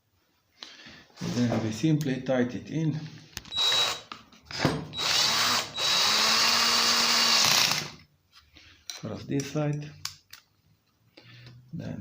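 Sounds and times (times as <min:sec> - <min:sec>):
electric drill motor whine: 0:03.5 - 0:08.0.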